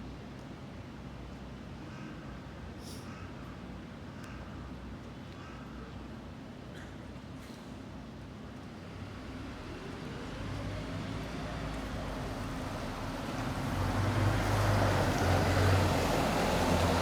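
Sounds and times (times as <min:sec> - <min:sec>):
bus engine accelerating: 0:09.0 - 0:17.0.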